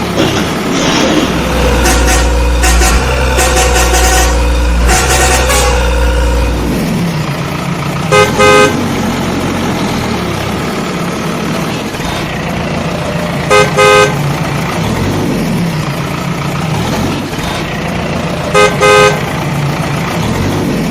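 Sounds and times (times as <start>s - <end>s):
vehicle horn double toot: 1.6s - 6.5s, 8.1s - 8.8s, 13.5s - 14.2s, 18.5s - 19.3s.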